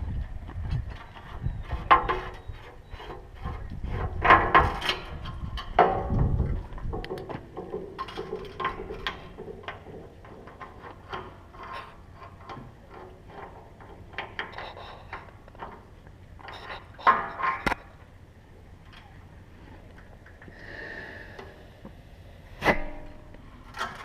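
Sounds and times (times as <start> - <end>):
metal clatter: 1.5 - 17.9.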